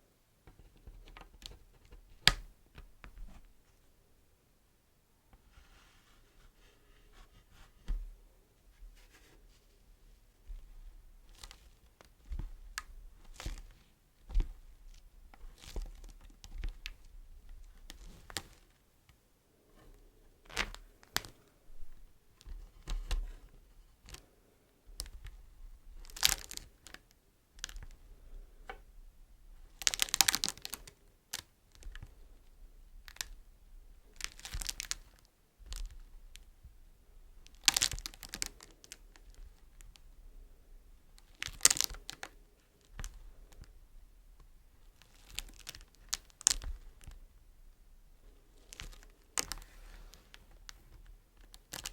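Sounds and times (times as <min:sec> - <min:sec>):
wax wrap crinkling: 0:10.5 - 0:18.8, 0:24.9 - 0:40.3, 0:40.9 - 0:47.5, 0:48.1 - 0:51.9.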